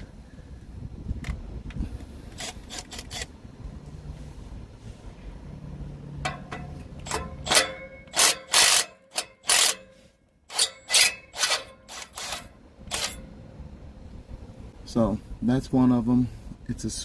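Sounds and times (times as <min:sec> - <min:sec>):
ratchet wrench clicking: 0:02.3 - 0:03.3, 0:07.0 - 0:09.9, 0:10.5 - 0:13.2.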